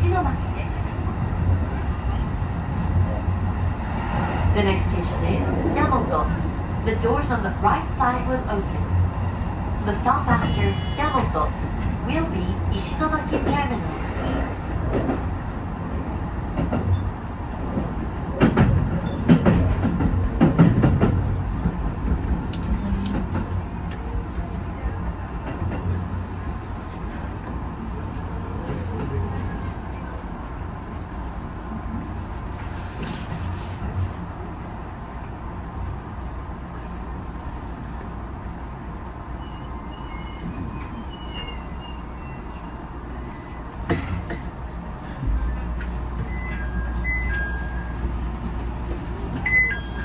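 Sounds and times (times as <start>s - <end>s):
train rumbling: 0.0s - 50.0s
high wheel squeals: 39.4s - 43.7s, 49.5s - 50.0s.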